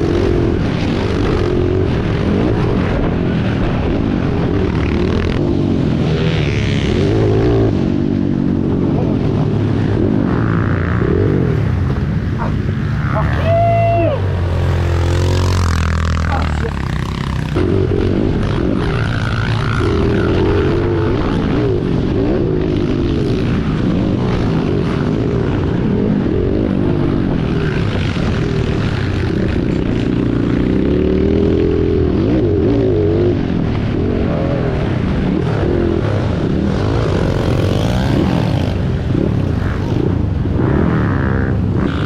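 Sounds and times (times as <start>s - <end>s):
motorcycle engines revving: 0.0s - 42.0s.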